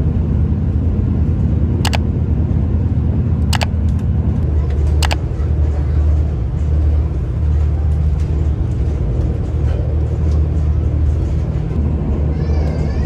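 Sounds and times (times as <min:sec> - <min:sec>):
diesel engine hum: 0:00.0 - 0:13.0
wheel and track noise: 0:03.6 - 0:13.0.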